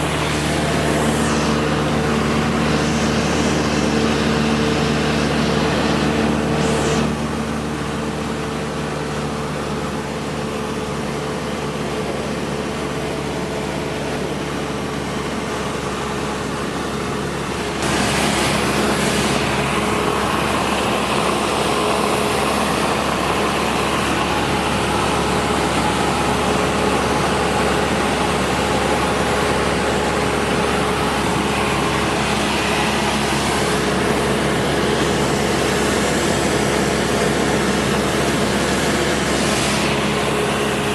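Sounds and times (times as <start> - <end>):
propeller plane engine droning: 0.0 - 40.9.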